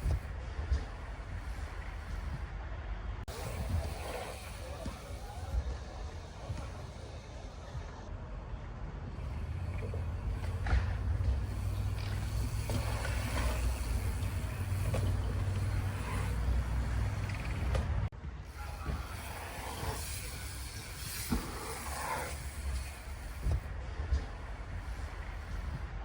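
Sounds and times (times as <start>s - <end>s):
bike tyres rolling on dirt: 0.0s - 26.0s
wind rushing over microphone: 0.0s - 26.0s.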